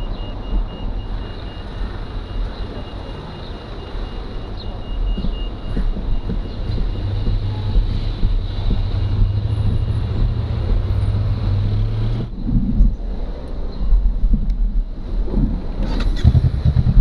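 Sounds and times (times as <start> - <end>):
wind on microphone: 0.0 - 17.0
motorcycle engine running: 5.2 - 13.0, 15.9 - 17.0.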